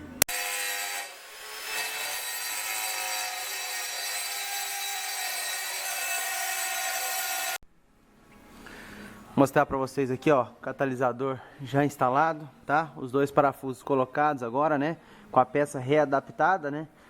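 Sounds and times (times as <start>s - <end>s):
tool rasping on metal: 0.3s - 7.6s.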